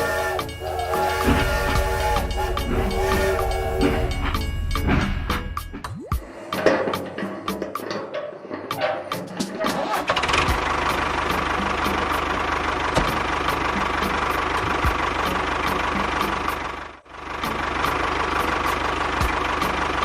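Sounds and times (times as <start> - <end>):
small engine ticking: 0.0 - 7.9, 10.0 - 16.8.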